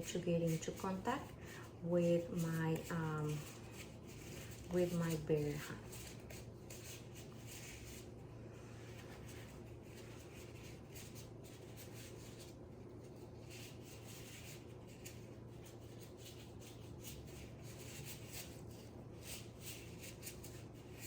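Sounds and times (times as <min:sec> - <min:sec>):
glove rubbing and rustling: 0:00.0 - 0:21.0
steady low hum: 0:00.0 - 0:21.0.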